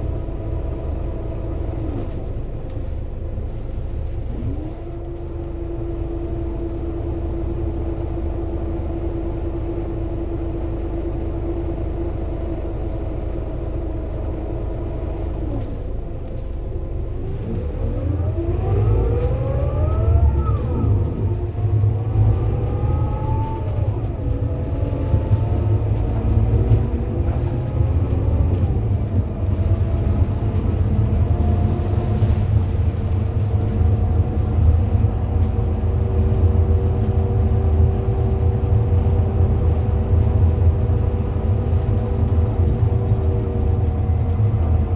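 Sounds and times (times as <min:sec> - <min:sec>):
bus accelerating and shifting gears: 0:00.0 - 0:44.9
bus diesel engine idling: 0:00.0 - 0:44.9.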